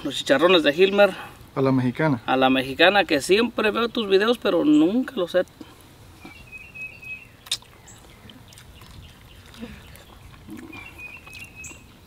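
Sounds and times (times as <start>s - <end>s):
bird chattering trill: 6.3s - 11.9s.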